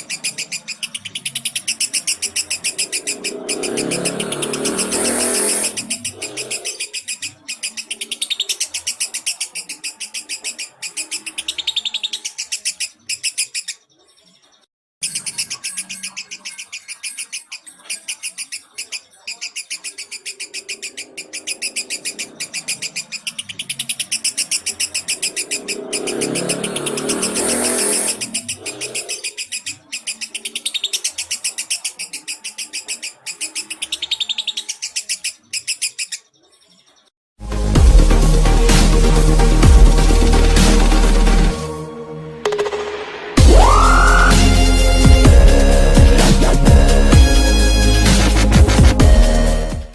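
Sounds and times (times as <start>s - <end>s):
lovebird chirping: 0.0s - 37.1s.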